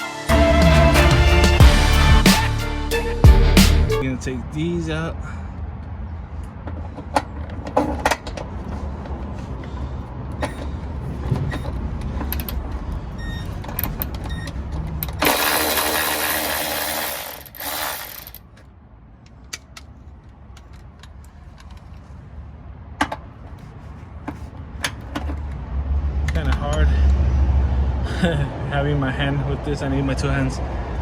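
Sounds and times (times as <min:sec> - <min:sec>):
metallic clicks and ratcheting: 0:15.0 - 0:18.4
power tool running: 0:15.2 - 0:18.4.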